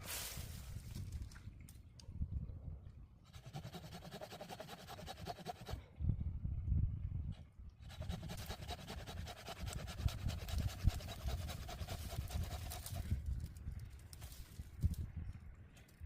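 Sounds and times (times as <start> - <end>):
hand saw rasping: 3.3 - 5.8, 7.9 - 13.0.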